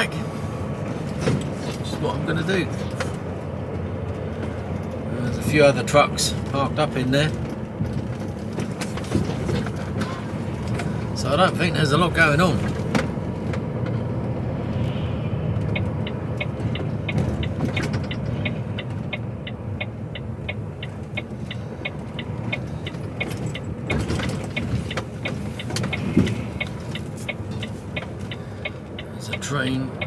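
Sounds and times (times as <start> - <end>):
diesel truck engine and road noise: 0.0 - 30.0
turn indicator ticking: 15.5 - 30.0.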